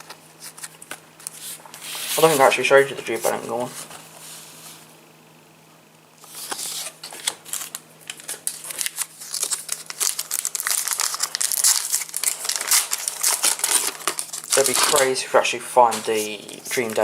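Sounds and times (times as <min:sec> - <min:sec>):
foil packet crinkling and tearing: 0:06.2 - 0:15.2.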